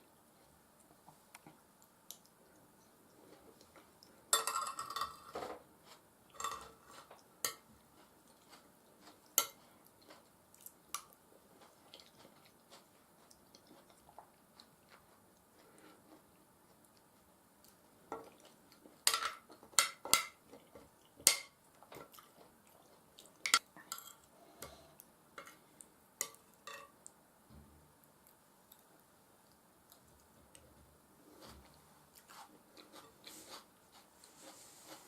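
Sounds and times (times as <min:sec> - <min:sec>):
chewing with wet mouth sounds: 0:06.9 - 0:19.6, 0:20.4 - 0:27.2
cutlery clicking on a plate: 0:26.2 - 0:26.9.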